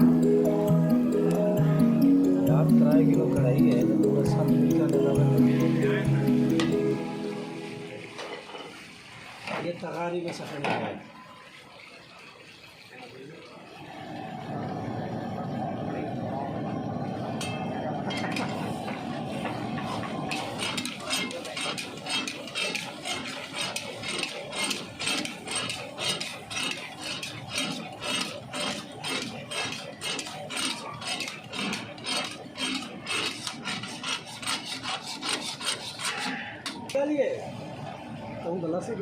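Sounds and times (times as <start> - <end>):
metal spatula scraping a wok: 19.4 - 36.8.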